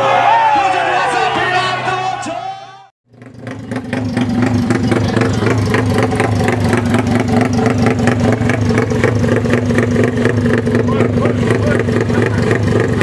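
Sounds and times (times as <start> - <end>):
motorcycle engine running: 3.0 - 13.0.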